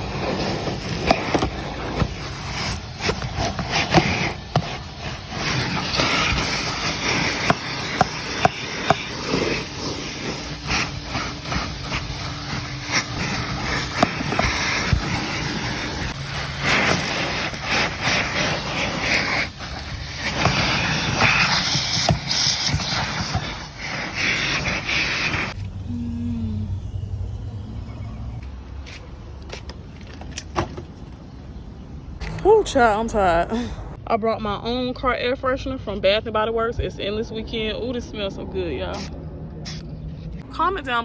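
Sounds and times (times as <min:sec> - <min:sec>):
vacuum cleaner suction: 0:00.0 - 0:25.6.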